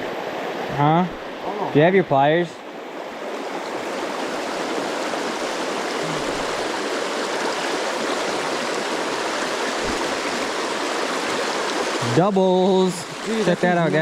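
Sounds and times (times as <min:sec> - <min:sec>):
river flowing over rocks: 0:02.6 - 0:14.0
faint low thump: 0:09.8 - 0:10.3.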